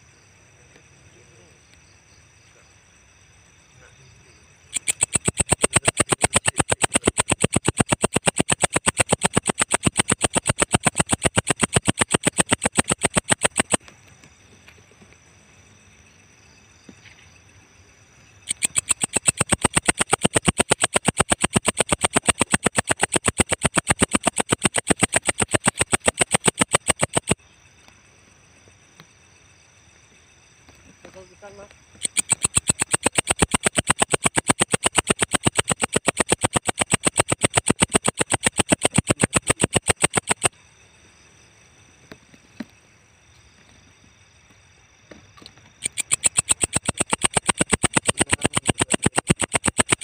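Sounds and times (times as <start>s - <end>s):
bush cricket rapid ticking: 0.0s - 50.0s.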